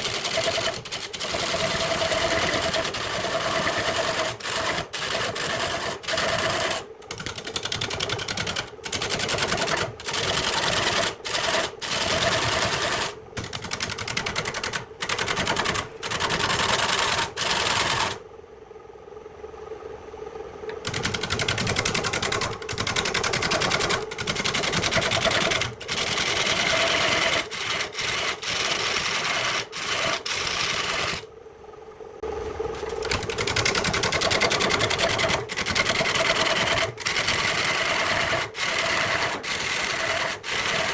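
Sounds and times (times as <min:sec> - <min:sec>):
motor hum: 0:00.0 - 0:40.9
lathe tool cutting wood: 0:25.9 - 0:31.2, 0:36.1 - 0:40.9.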